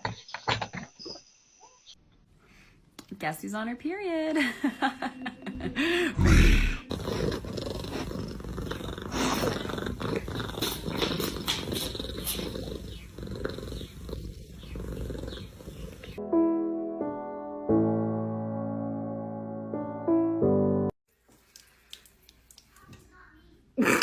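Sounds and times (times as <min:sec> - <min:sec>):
cat purring: 0:06.6 - 0:16.2.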